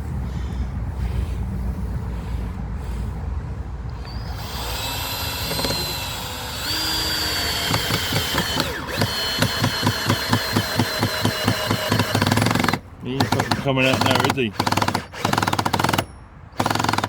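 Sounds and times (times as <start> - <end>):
drill clutch clicking: 4.0 - 17.0
power drill driving a screw: 4.0 - 17.0.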